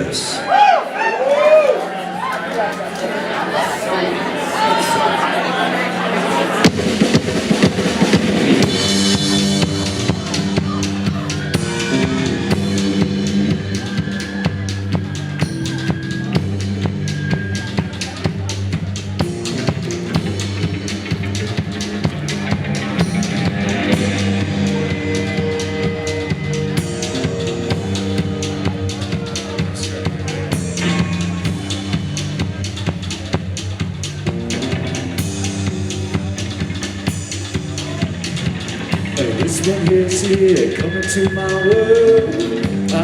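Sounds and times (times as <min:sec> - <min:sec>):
bass line: 0:06.0 - 0:43.0
drum kit beat: 0:06.6 - 0:43.0.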